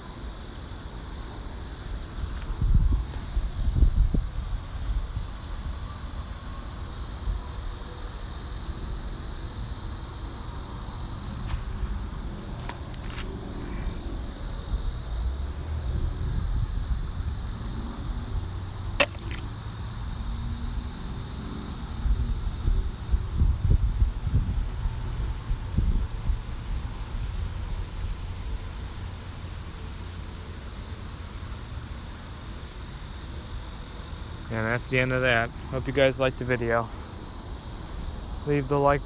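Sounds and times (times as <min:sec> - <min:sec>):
insects hissing: 0:00.0 - 0:39.0
wind buffeting microphone: 0:02.0 - 0:05.9, 0:22.0 - 0:27.9
sharp click: 0:19.0 - 0:19.5.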